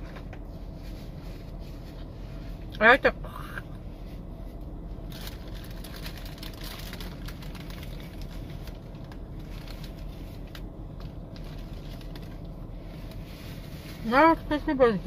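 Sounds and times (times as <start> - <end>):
steady low rumble: 0.0 - 15.0
paper wrapper crackling: 5.0 - 14.5.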